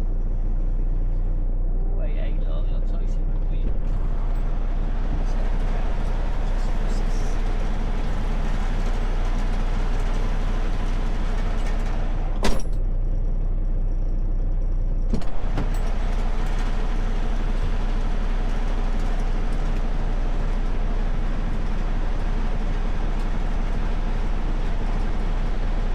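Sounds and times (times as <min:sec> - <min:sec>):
vehicle engine rumble: 0:00.0 - 0:25.9.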